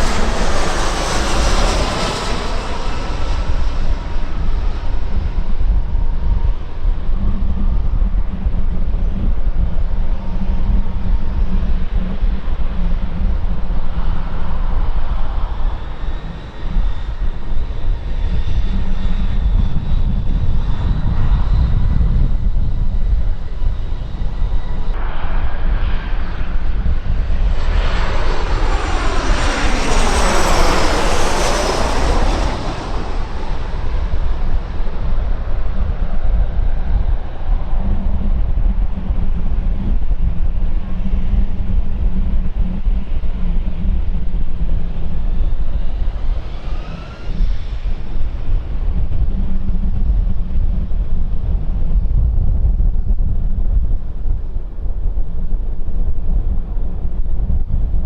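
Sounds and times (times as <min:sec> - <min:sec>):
aircraft passing with hiss: 0:00.0 - 0:05.8, 0:23.3 - 0:38.4, 0:42.3 - 0:50.6
aircraft engines rumbling: 0:00.0 - 0:58.0.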